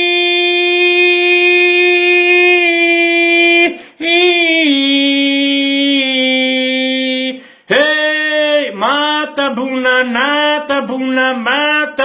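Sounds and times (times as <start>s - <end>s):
person singing unaccompanied: 0.0s - 12.0s.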